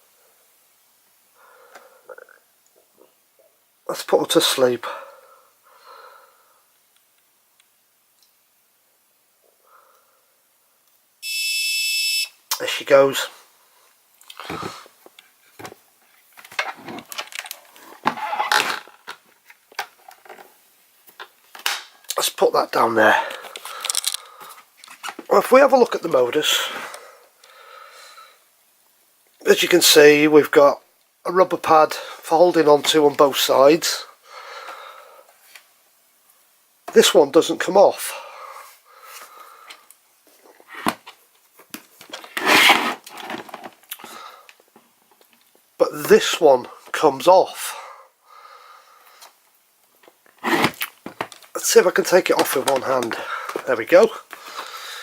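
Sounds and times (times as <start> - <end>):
rubbing scrape: 42.3 - 43.1, 50.4 - 50.8.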